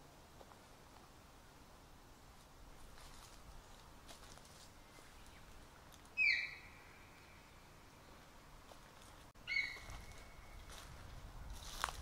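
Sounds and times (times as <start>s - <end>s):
songbird whistling: 6.2s - 7.1s, 9.4s - 10.2s.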